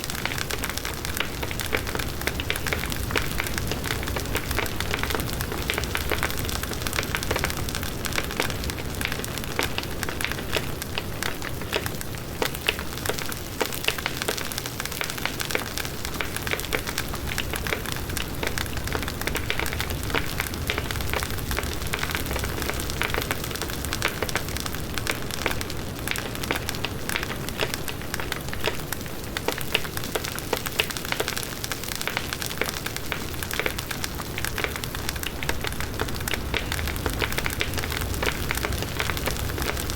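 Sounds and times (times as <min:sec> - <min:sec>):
bonfire crackling and popping: 0:00.0 - 0:39.9
rushing flames: 0:32.4 - 0:39.9.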